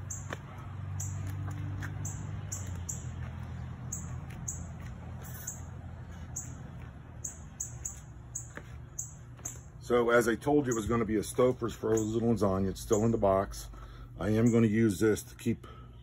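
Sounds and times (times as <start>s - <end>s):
small bird chirping: 0.0s - 6.6s, 7.2s - 9.7s
low steady hum: 0.0s - 16.0s.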